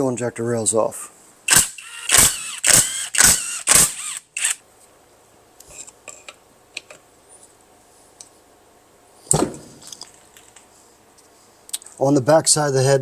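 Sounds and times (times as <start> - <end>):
thump: 9.3 - 9.8.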